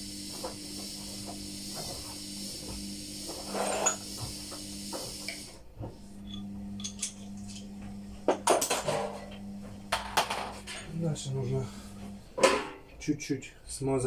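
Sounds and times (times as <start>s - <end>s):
metal tools clinking and scraping: 3.5s - 4.1s.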